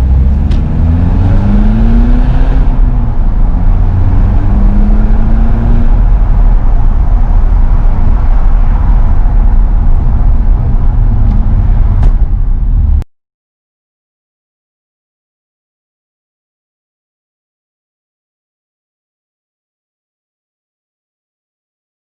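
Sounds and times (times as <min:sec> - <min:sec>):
loud diesel engine rumble: 0:00.0 - 0:13.0.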